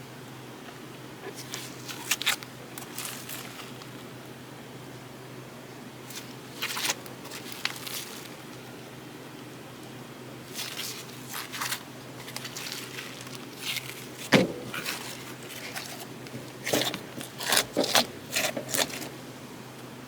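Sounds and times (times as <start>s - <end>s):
slime squishing and crackling: 1.3s - 4.0s, 6.1s - 8.6s, 10.4s - 19.2s.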